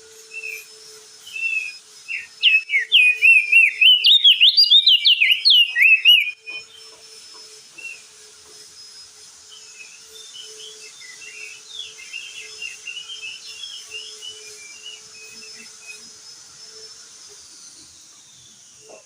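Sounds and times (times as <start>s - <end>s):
high insect-like whine: 0.0s - 19.0s
bird twittering song: 0.3s - 7.0s, 9.5s - 16.8s.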